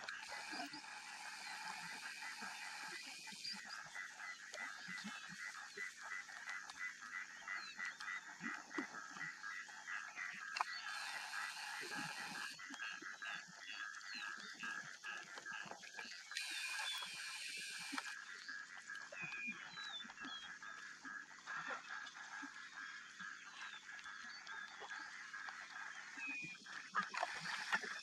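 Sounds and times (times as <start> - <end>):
birds calling and chirping: 9.2 - 14.9, 15.5 - 18.1.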